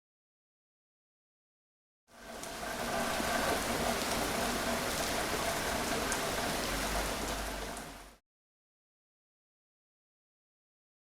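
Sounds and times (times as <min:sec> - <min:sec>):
steady rainfall: 0:02.1 - 0:08.2
rain drops ticking: 0:02.2 - 0:08.2.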